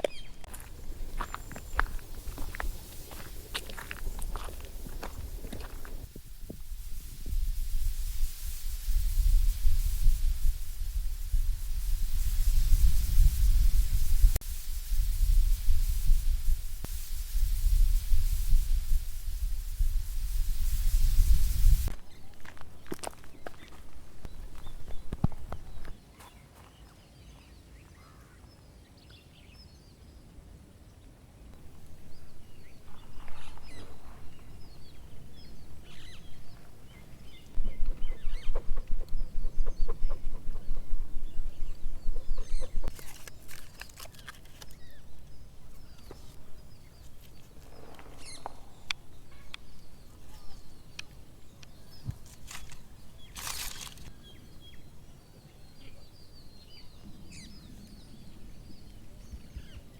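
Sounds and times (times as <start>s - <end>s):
rapid low thumps: 0.5s - 21.9s.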